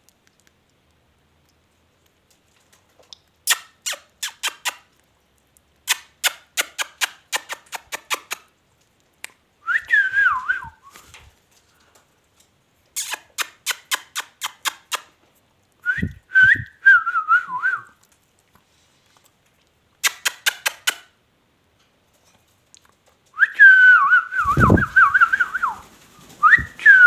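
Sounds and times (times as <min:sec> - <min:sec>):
quick sharp clicks: 0:13.0 - 0:15.1, 0:20.0 - 0:21.1.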